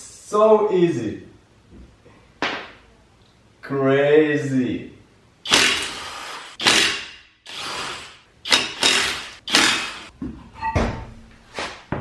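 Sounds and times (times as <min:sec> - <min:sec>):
impact wrench bursts: 0:05.4 - 0:10.1.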